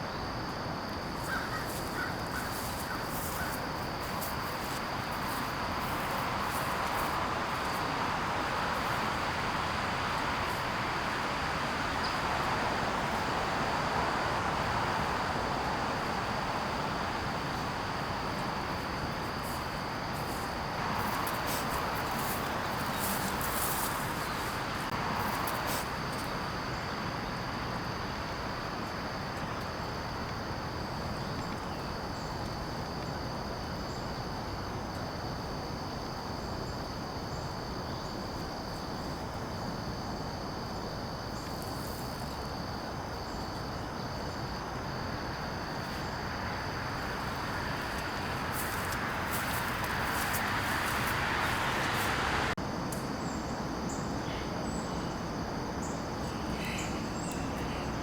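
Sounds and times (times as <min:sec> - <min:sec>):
high insect drone: 0:00.0 - 0:58.0
broad hiss: 0:01.7 - 0:26.2, 0:45.7 - 0:52.6.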